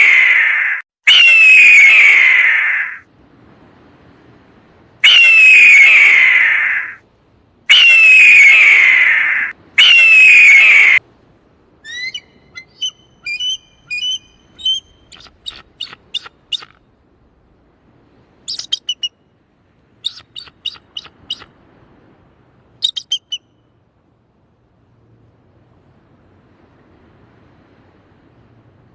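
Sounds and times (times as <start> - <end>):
eagle screaming: 0.0 - 3.0, 5.0 - 7.0, 7.7 - 11.0.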